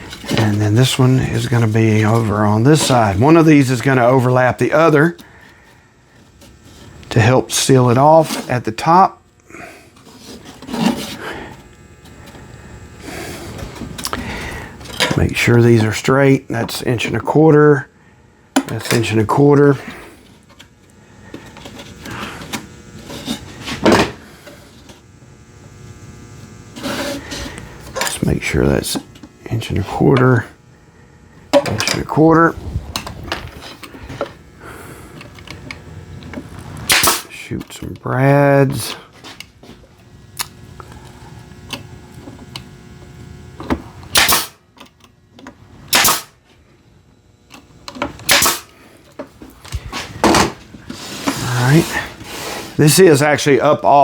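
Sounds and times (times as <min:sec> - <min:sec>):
nail gun firing: 0:36.9 - 0:37.3, 0:44.1 - 0:44.6, 0:45.9 - 0:46.4, 0:48.2 - 0:48.8.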